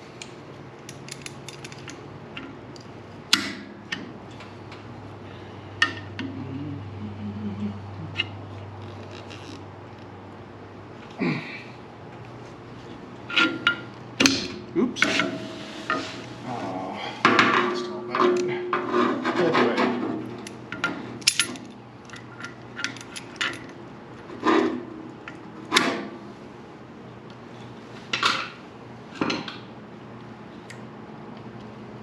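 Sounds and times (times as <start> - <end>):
metal tools clanking and rattling: 0.9 - 2.0, 17.3 - 23.8.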